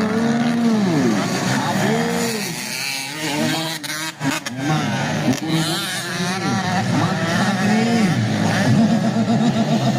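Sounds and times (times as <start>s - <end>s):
dirt bike engine revving: 0.0s - 9.9s.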